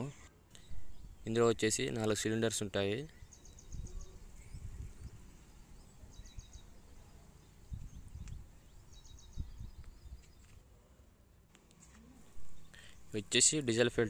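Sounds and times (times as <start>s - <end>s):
small bird chirping: 3.0s - 10.6s.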